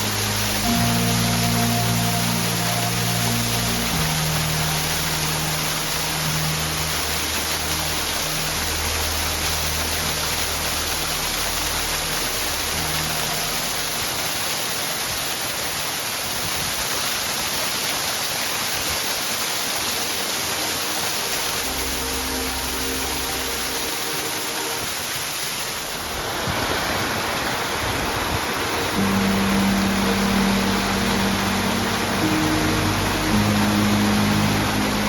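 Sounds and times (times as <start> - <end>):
low hum of steady tones: 0.0 - 14.3, 28.9 - 35.0
small waterfall rushing: 0.0 - 35.0.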